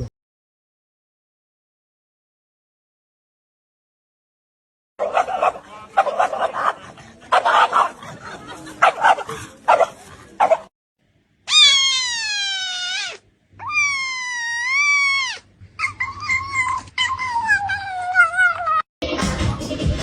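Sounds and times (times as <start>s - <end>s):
dog barking: 5.0s - 8.1s, 8.8s - 10.7s
dog howling: 11.5s - 18.8s.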